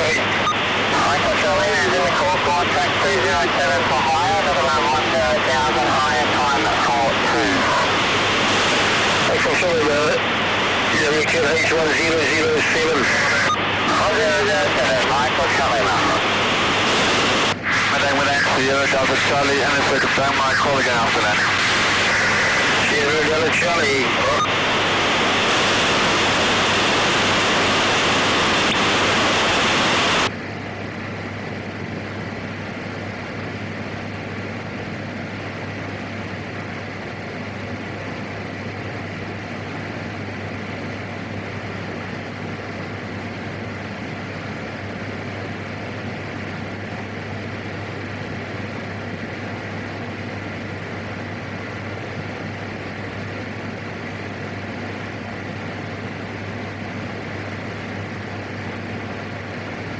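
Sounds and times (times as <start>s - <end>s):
radio hiss: 0.0s - 30.3s
turboprop engine drone: 0.0s - 59.9s.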